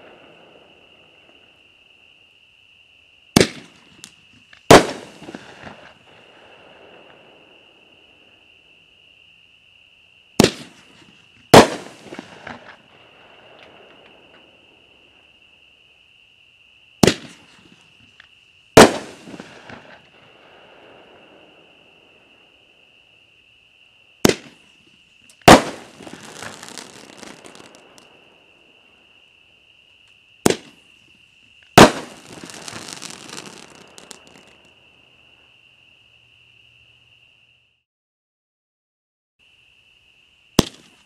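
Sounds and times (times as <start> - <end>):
firework bursting bang: 3.4 - 4.1, 4.7 - 6.0, 10.4 - 12.8, 17.0 - 17.8, 18.8 - 20.1, 24.2 - 24.6, 25.4 - 28.1, 30.4 - 30.8, 31.8 - 34.6, 40.6 - 40.9
firework crackling: 3.4 - 7.3, 10.4 - 14.1, 17.0 - 17.9, 18.8 - 21.5, 25.4 - 28.3, 31.7 - 34.8, 40.6 - 41.0.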